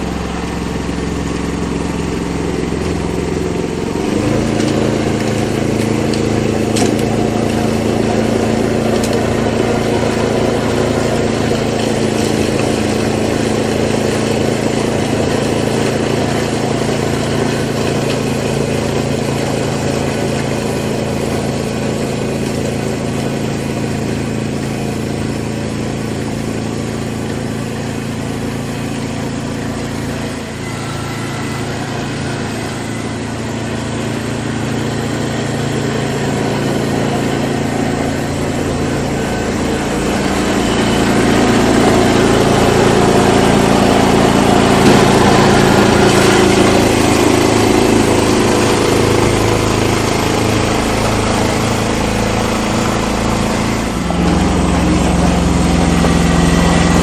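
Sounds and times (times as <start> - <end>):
old engine running: 0.0 - 57.0.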